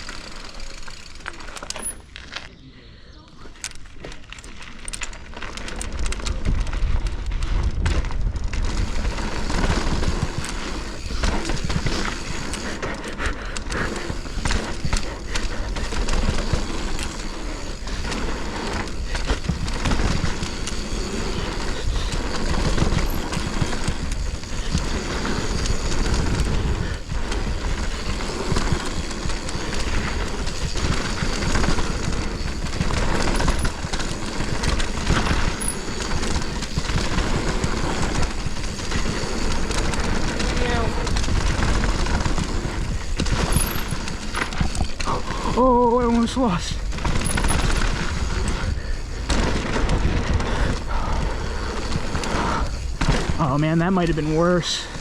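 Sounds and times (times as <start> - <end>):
bike rattling and clicking: 0.0 - 2.5, 3.4 - 55.0
tyres running on dry dirt: 0.0 - 55.0
wind rushing over microphone: 13.6 - 55.0.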